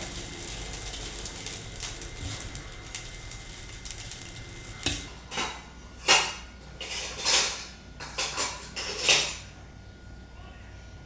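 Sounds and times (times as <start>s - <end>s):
metal utensil scraping cookware: 0.0s - 5.1s.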